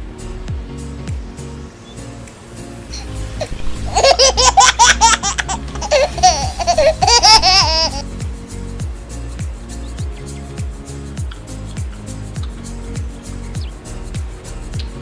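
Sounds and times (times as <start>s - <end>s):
music with a steady beat: 0.0s - 15.0s
high-pitched laughter: 3.4s - 8.0s.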